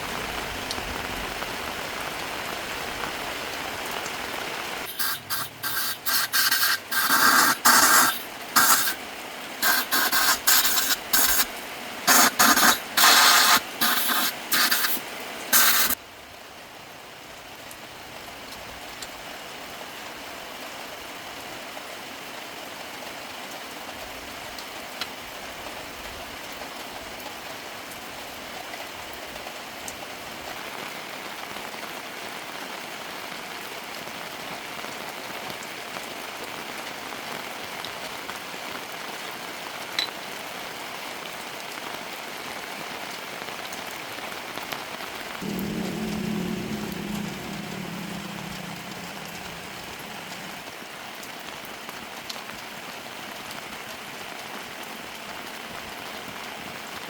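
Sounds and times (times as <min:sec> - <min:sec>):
spray nozzle hissing: 0:04.9 - 0:09.0, 0:09.6 - 0:11.5, 0:12.1 - 0:16.0.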